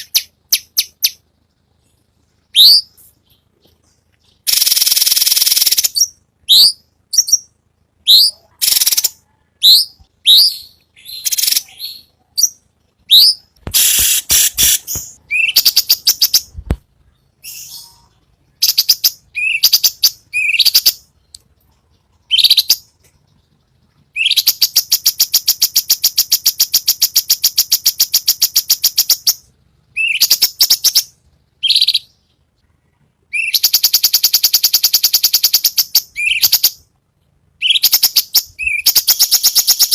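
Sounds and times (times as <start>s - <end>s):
bird singing whistled notes: 2.5s - 3.4s, 4.2s - 16.6s, 17.4s - 21.3s, 24.1s - 32.2s, 33.3s - 36.8s, 37.6s - 39.9s
bird rattling trill: 4.5s - 6.1s.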